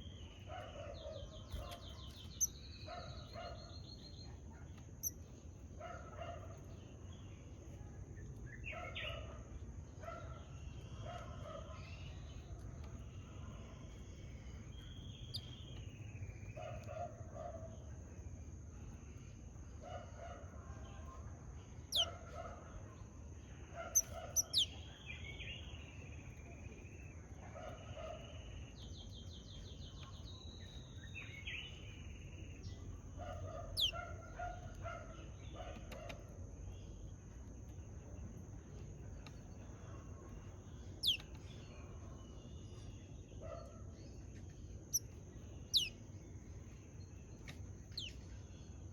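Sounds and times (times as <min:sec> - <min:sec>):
rapid bird trill: 0:23.9 - 0:24.8, 0:33.2 - 0:34.4, 0:40.9 - 0:41.4, 0:45.7 - 0:46.0
low chattering bird calls: 0:23.9 - 0:25.3, 0:29.8 - 0:36.3, 0:40.8 - 0:41.8, 0:44.9 - 0:46.0, 0:47.4 - 0:48.3.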